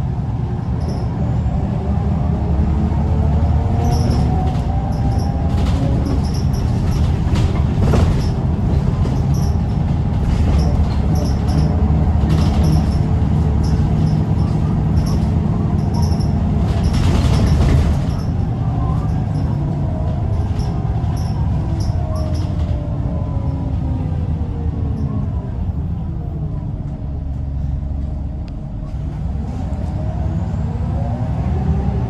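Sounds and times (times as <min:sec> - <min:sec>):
bus engine running under load: 0:00.0 - 0:32.0
bodywork rattling and knocking: 0:03.8 - 0:22.8.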